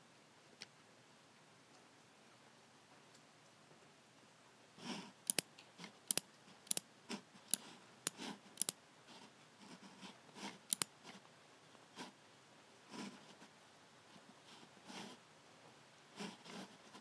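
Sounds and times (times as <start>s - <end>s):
mouse buttons clicking: 5.2s - 6.8s, 7.5s - 8.8s, 10.6s - 10.9s
mouse being handled: 5.3s - 6.8s, 7.4s - 8.8s, 9.6s - 11.2s.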